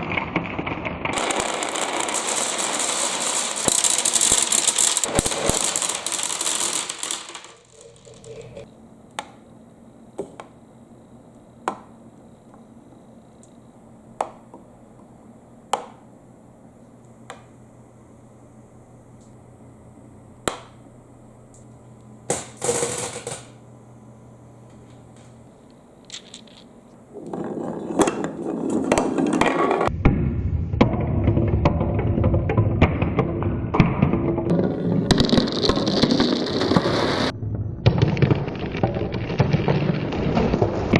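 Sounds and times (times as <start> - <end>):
marbles clicking on track: 1.1 - 8.7
marbles rattling down a track: 1.1 - 8.7, 22.3 - 23.5, 26.0 - 29.9, 34.5 - 37.3.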